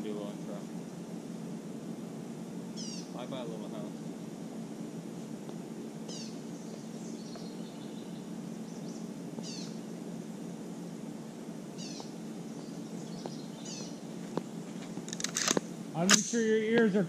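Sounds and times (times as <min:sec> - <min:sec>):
low background hum: 0:00.0 - 0:17.0
bird chirping: 0:02.7 - 0:03.2, 0:06.1 - 0:09.9, 0:11.7 - 0:14.2.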